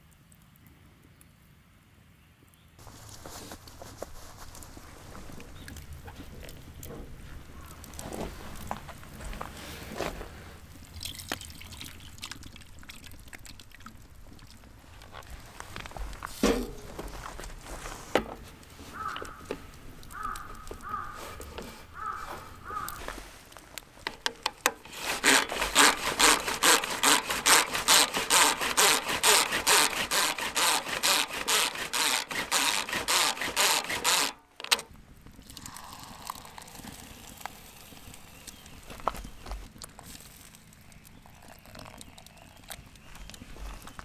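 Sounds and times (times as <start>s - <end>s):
back-and-forth sawing: 24.6s - 34.8s.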